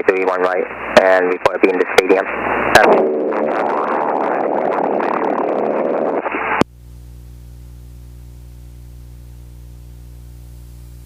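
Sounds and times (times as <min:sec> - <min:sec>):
radio hiss: 0:00.0 - 0:06.7.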